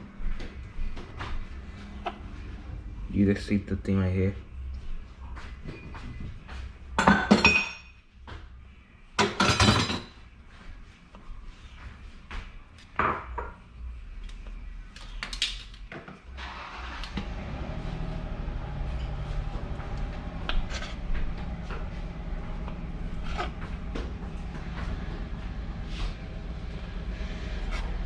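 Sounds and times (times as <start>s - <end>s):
steady low rumble: 17.3s - 28.0s.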